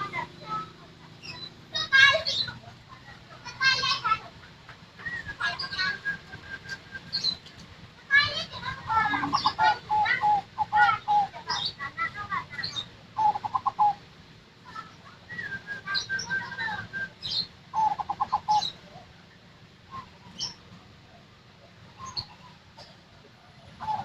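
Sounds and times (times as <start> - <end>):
dove cooing staccato notes: 0.0 - 7.6, 8.2 - 14.0, 17.7 - 19.1, 22.1 - 24.0
high thin bird chirps: 5.0 - 7.6, 14.7 - 18.8.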